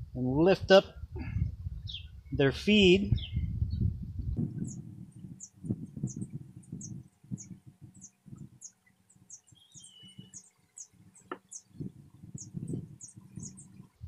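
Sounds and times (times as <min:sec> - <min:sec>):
small bird chirping: 0:01.8 - 0:02.2, 0:03.1 - 0:14.0.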